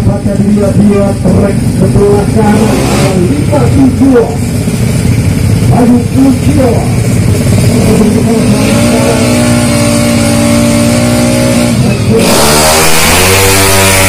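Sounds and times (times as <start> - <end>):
scooter engine revving and accelerating: 1.6 - 3.9, 7.0 - 14.0.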